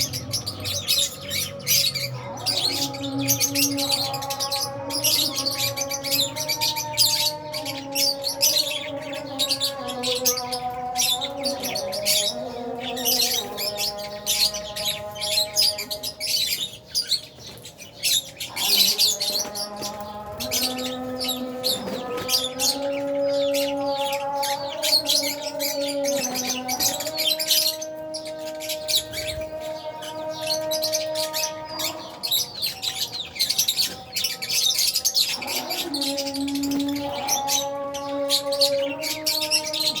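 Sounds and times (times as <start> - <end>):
lovebirds chirping: 0.0 - 40.0.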